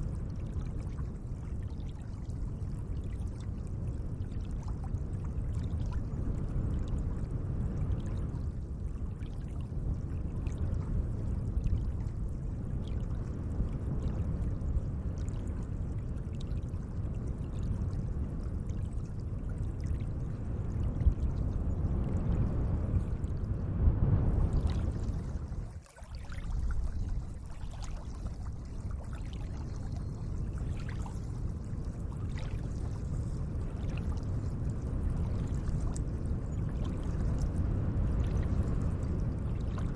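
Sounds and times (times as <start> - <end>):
lake water lapping: 25.4 - 31.3.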